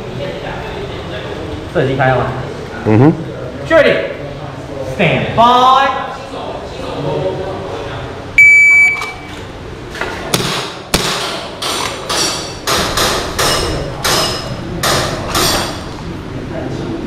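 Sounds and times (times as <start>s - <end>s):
shot timer beep: 8.4s - 9.3s.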